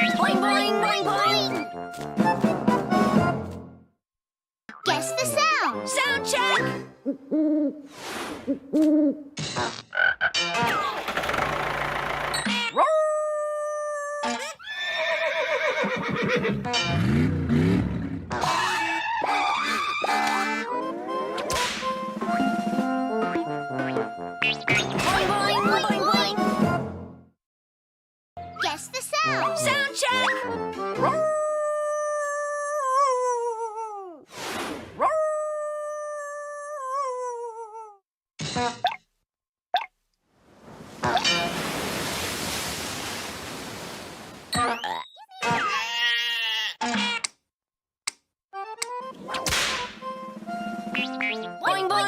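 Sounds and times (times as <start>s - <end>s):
noisy clatter: 10.9s - 12.4s
cartoon howls sliding down: 35.0s - 37.2s.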